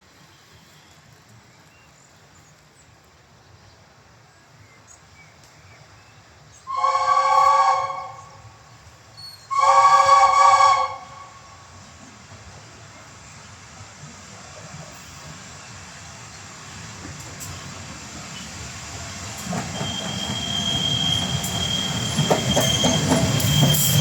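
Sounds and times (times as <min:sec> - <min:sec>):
steam whistle blasts: 0:06.7 - 0:08.6, 0:09.2 - 0:11.6.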